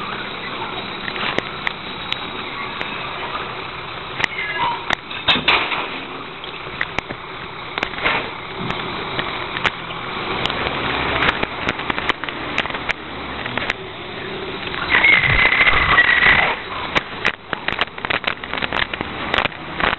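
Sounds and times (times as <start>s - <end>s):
recycling truck rumbling: 0.0s - 19.9s
sharp clicks and clanks: 4.1s - 13.8s, 14.6s - 19.9s.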